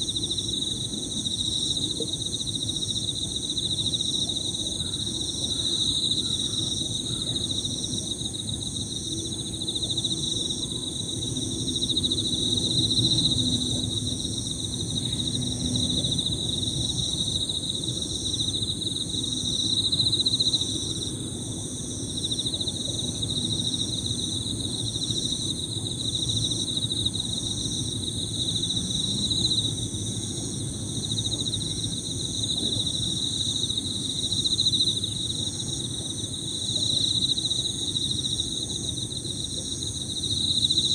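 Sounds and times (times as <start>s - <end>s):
field crickets trilling: 0.0s - 40.9s.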